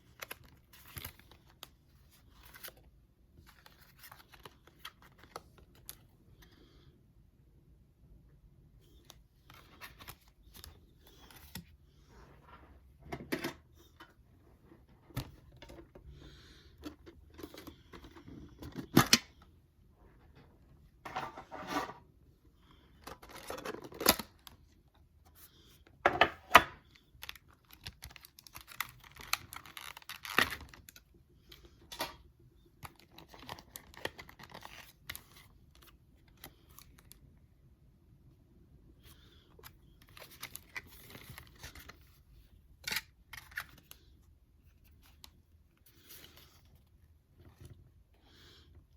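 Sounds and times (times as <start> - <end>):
card wrapper tearing and crinkling: 27.2 - 31.0, 32.8 - 37.2, 40.0 - 42.2.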